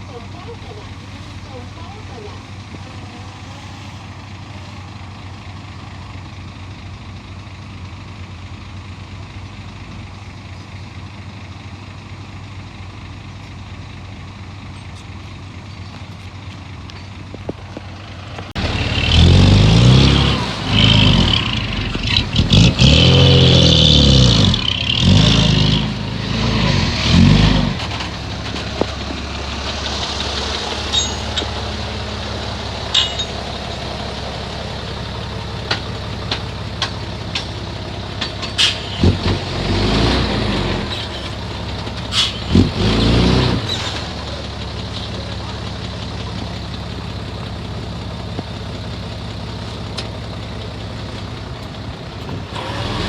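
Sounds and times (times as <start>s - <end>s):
diesel engine revving: 0.0s - 53.0s
sharp clanks: 18.4s - 46.8s.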